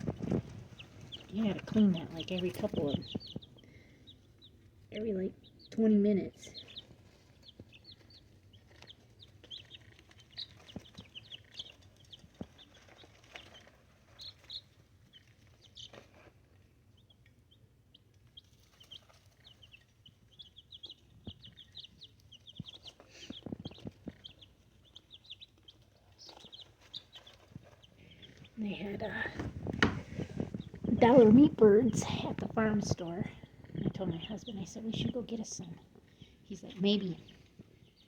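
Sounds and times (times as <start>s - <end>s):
chicks peeping: 0.0s - 38.0s
knocks and scuffing: 29.0s - 32.6s.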